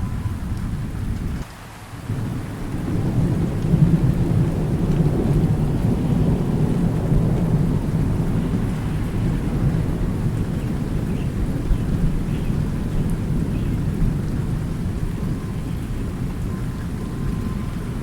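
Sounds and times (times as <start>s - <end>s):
rolling thunder: 0.0s - 1.4s, 2.1s - 18.0s
steady rain: 0.0s - 18.0s.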